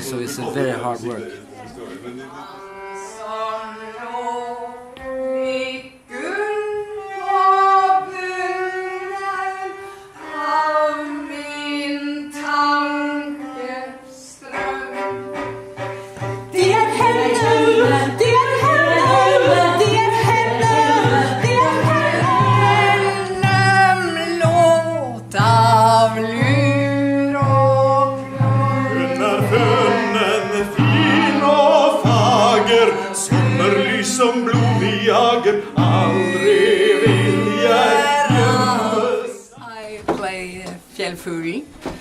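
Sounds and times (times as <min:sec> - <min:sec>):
group of voices singing: 0:02.7 - 0:39.6
opera voice singing long notes: 0:16.6 - 0:39.5.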